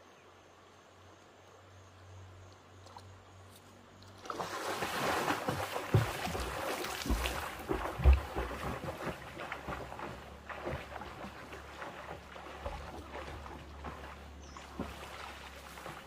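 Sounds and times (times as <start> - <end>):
water splashing from wading: 4.1 - 16.0.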